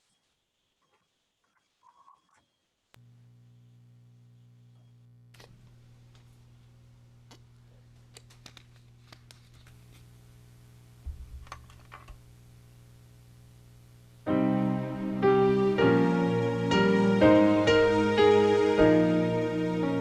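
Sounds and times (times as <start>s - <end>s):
steady low hum: 3.0s - 20.0s
piano playing slow chords: 14.2s - 20.0s.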